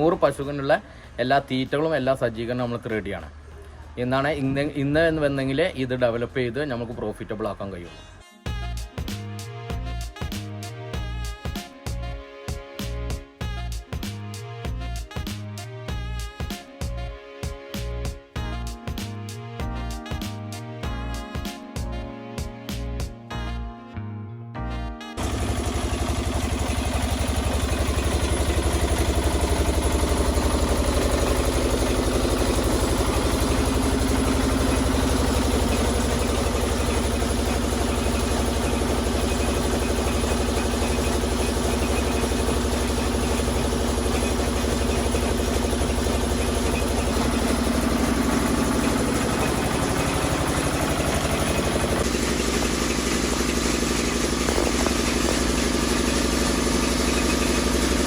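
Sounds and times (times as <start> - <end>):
engine running: 25.2 - 58.0.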